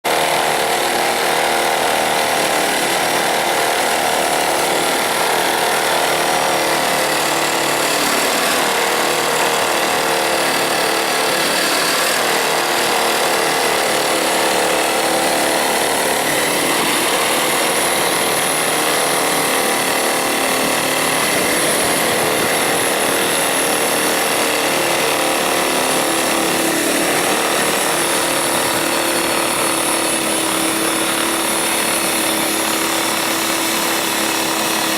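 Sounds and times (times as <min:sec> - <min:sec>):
electric snowblower running: 0:00.0 - 0:34.9.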